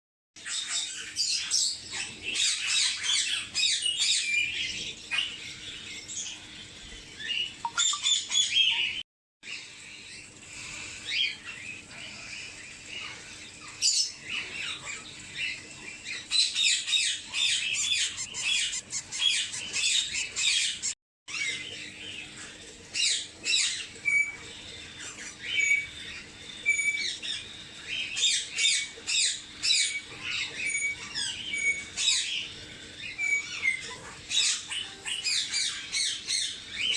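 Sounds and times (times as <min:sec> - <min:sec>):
baby birds chirping: 0:07.4 - 0:09.0, 0:11.1 - 0:21.7.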